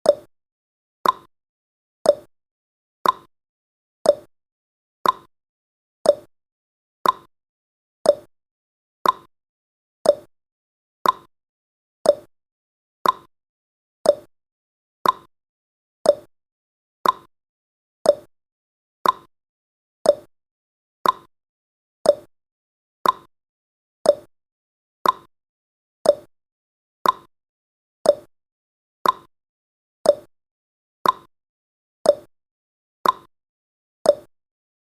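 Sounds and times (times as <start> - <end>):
clock ticking: 1.0 - 1.3, 5.0 - 5.3, 7.0 - 7.3, 8.1 - 8.3, 9.0 - 9.3, 10.1 - 10.3, 11.0 - 11.3, 12.1 - 12.3, 13.0 - 13.3, 14.1 - 14.3, 15.0 - 15.3, 16.1 - 16.3, 17.0 - 17.3, 18.1 - 18.3, 19.0 - 19.3, 20.1 - 20.3, 21.0 - 21.3, 22.1 - 22.3, 23.0 - 23.3, 24.1 - 24.3, 25.0 - 25.3, 26.0 - 26.3, 27.0 - 27.3, 28.1 - 28.3, 29.0 - 29.3, 30.1 - 30.3, 31.0 - 31.3, 32.1 - 32.3, 33.0 - 33.3, 34.1 - 34.3.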